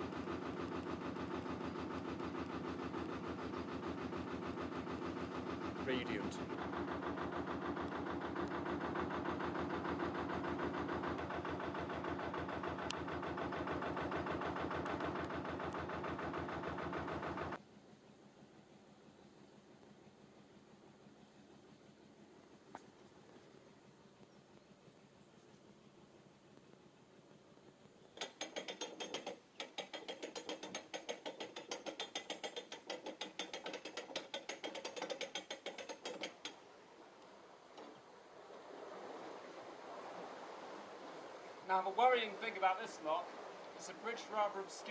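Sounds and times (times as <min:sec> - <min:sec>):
diesel engine chugging: 0:00.0 - 0:17.6
ratchet pawl clicking rapidly: 0:28.2 - 0:36.6.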